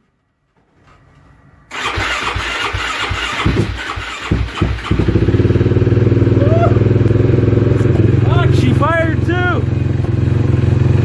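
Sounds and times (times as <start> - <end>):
quad engine cranking and starting: 1.7 - 11.0.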